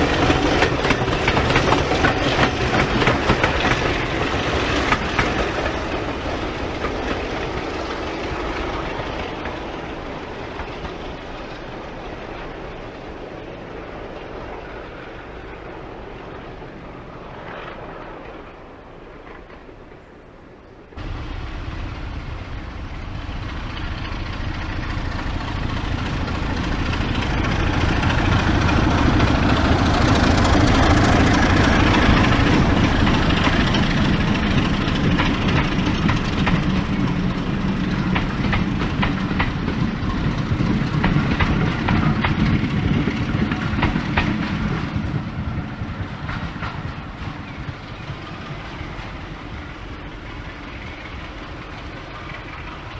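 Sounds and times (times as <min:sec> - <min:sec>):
wheels clicking over rail joints: 0:00.0 - 0:13.3, 0:17.4 - 0:52.9
train engine and wheel noise: 0:00.0 - 0:52.9.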